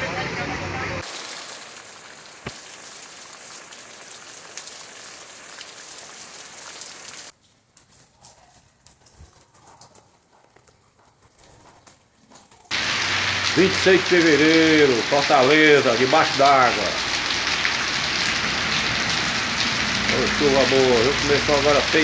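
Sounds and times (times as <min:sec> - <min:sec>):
heavy rain on leaves: 0:01.0 - 0:07.3, 0:12.7 - 0:22.0.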